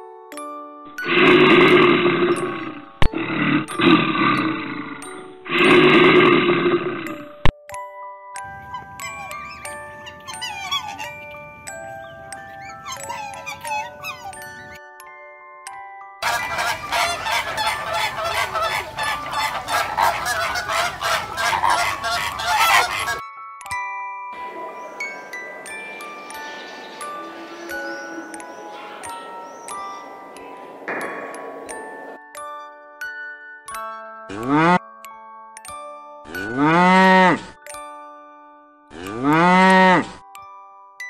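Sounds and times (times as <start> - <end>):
background music with chiming tones: 0.0 - 19.3, 23.2 - 41.0
bear growling: 1.0 - 7.4
flamingos honking: 16.2 - 23.2, 24.4 - 32.2.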